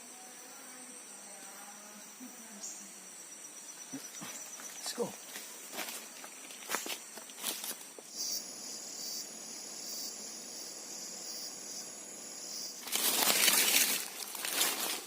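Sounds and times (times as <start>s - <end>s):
insects droning: 0.0s - 15.0s
rustle of leaves and brush: 3.7s - 9.5s, 10.3s - 15.0s.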